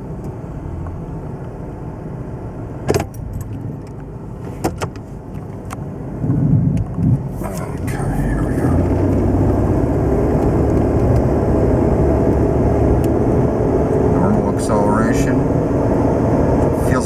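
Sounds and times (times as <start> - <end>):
truck engine: 0.0 - 6.4, 7.0 - 17.0
road noise: 0.0 - 17.0.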